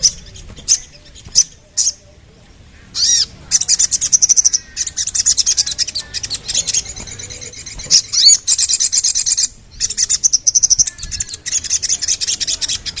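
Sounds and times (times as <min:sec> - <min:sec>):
bird singing high sharp chirps: 0:02.8 - 0:13.0.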